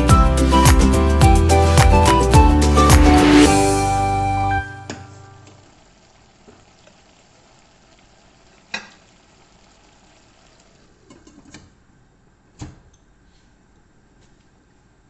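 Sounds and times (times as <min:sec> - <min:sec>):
faint sizzle: 0:03.5 - 0:12.5.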